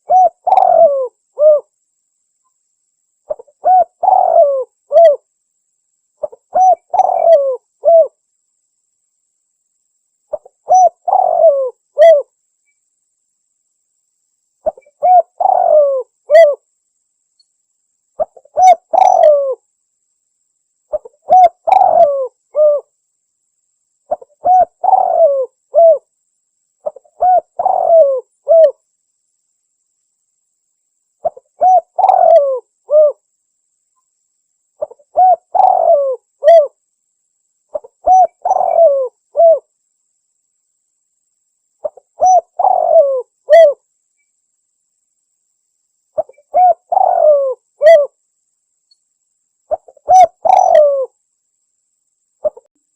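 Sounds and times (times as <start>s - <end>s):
dove cooing: 0.0s - 1.7s, 3.3s - 5.2s, 6.2s - 8.2s, 10.3s - 12.3s, 14.6s - 16.6s, 18.2s - 19.6s, 20.9s - 22.9s, 24.1s - 26.1s, 26.8s - 28.8s, 31.2s - 33.2s, 34.8s - 36.8s, 37.7s - 39.7s, 41.8s - 43.8s, 46.2s - 48.2s, 49.7s - 51.1s, 52.4s - 52.7s.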